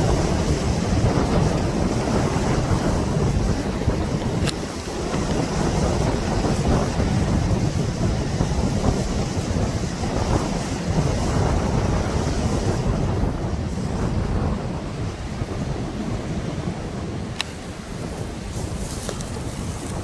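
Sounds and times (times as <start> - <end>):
sea surf: 0.0 - 20.0
wind buffeting microphone: 0.0 - 20.0.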